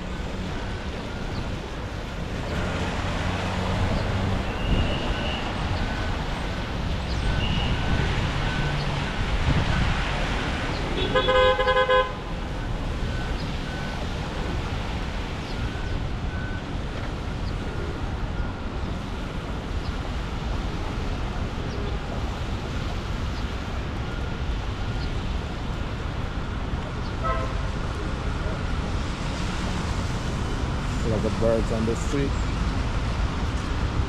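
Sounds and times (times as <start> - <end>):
city traffic noise: 0.0 - 34.0
vehicle horn honk: 10.9 - 12.2, 27.2 - 27.7.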